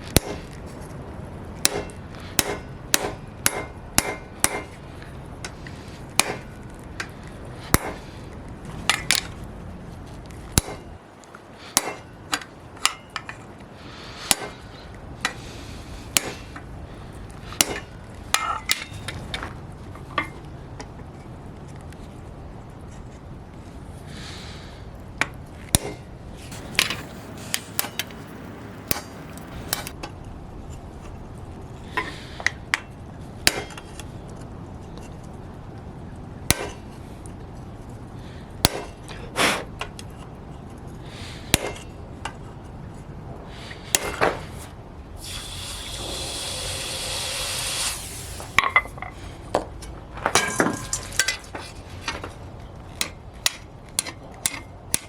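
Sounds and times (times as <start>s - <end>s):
hammer striking steel on anvil: 0.2s - 0.4s, 1.6s - 4.8s, 6.2s - 6.6s, 7.7s - 8.0s, 10.6s - 10.9s, 11.8s - 12.1s, 12.8s - 13.3s, 14.3s - 14.6s, 16.2s - 16.4s, 17.6s - 19.0s, 33.5s - 33.8s, 36.5s - 36.8s, 38.6s - 39.0s, 41.5s - 41.9s, 50.3s - 51.5s, 53.0s - 55.0s
steady hiss: 26.3s - 29.9s, 43.6s - 49.4s.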